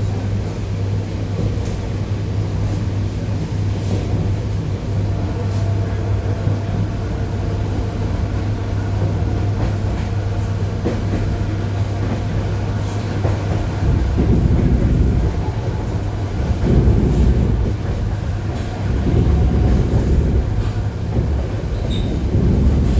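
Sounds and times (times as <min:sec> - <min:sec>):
electric train hum: 0:00.0 - 0:22.9
heavy low rumble: 0:13.8 - 0:21.6.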